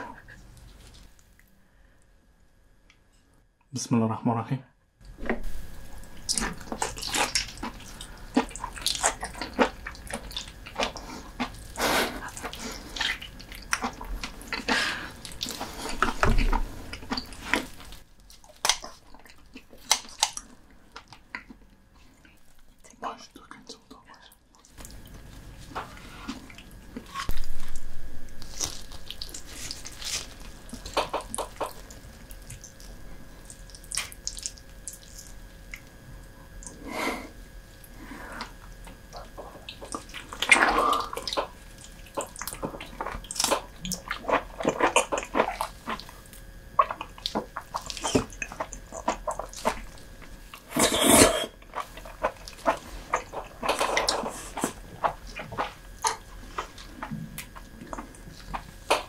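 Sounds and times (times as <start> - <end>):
chewing and biting: 6.2 - 23.9, 28.4 - 36.0, 37.8 - 59.0.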